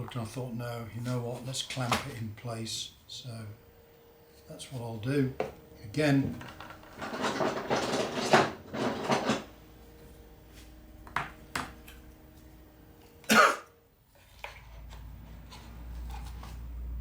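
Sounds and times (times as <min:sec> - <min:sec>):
tools clattering on a workbench: 0:06.2 - 0:09.6.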